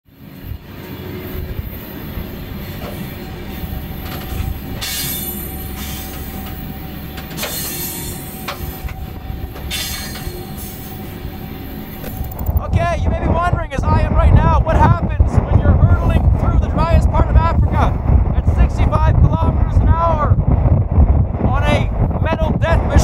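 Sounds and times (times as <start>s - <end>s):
freight train wheels rumbling: 0.0s - 23.0s
short metallic squeals: 2.9s - 12.3s.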